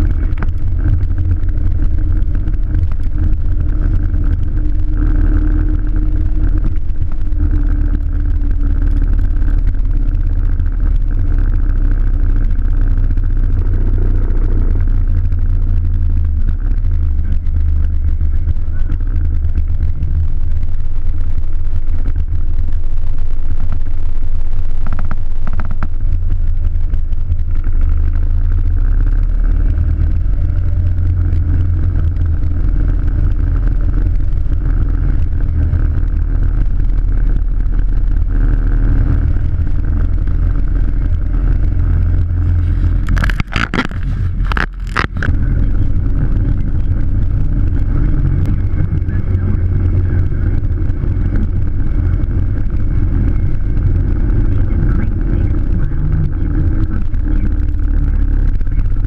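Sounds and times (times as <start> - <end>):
bike riding road and wind noise: 0.0 - 59.0.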